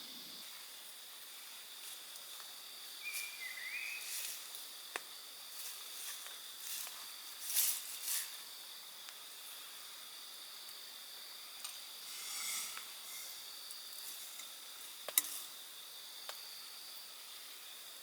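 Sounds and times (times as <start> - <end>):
cicadas droning: 0.0 - 18.0
bird whistling: 3.0 - 4.1.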